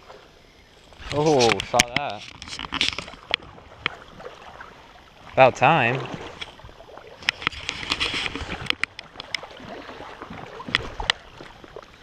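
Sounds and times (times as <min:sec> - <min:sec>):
creek water splashing: 0:00.0 - 0:12.0
sharp clicks and knocks: 0:01.3 - 0:04.0, 0:07.2 - 0:09.4.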